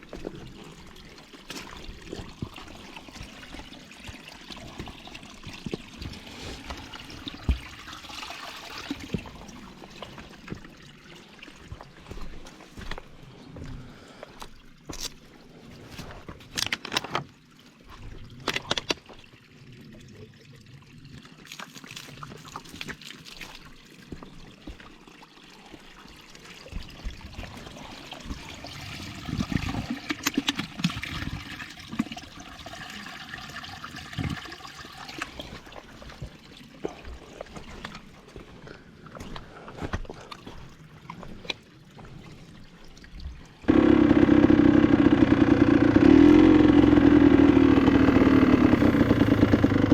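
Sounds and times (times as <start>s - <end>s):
water trickling from fountain: 0.0s - 13.0s, 16.6s - 39.4s, 40.2s - 43.7s
motorcycle engine running: 43.7s - 49.9s.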